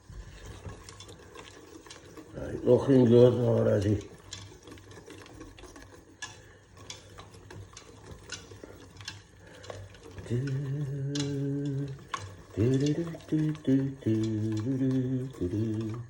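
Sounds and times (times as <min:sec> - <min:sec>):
man singing a steady note: 0:10.2 - 0:16.0.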